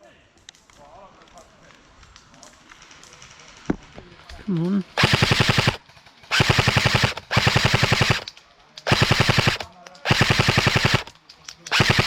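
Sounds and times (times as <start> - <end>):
airsoft rifle firing bursts: 5.0 - 12.0.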